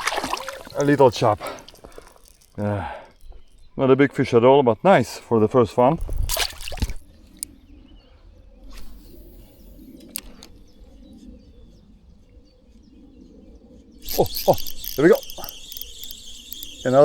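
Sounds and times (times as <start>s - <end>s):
faint bird chirps: 0.3s - 6.0s, 7.0s - 17.0s
small clicks: 0.7s - 3.6s, 8.7s - 11.0s, 14.0s - 17.0s.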